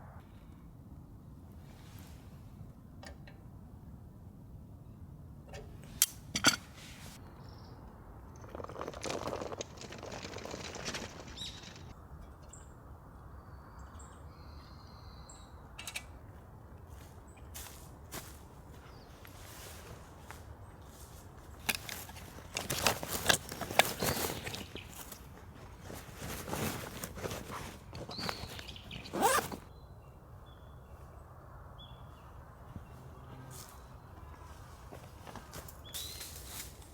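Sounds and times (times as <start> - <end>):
rustle: 1.6 - 2.7, 5.7 - 7.4, 16.9 - 29.7, 32.1 - 36.9
zipper pulled open and shut: 26.4 - 29.7.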